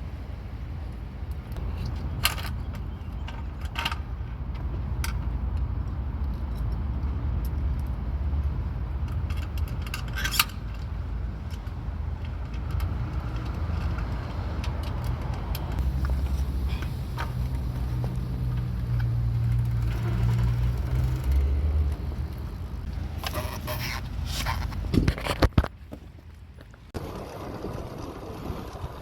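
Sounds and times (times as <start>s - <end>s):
bicycle road rumble: 0.0s - 29.0s
wind: 0.0s - 29.0s
metallic clinks and rattles: 1.6s - 17.9s.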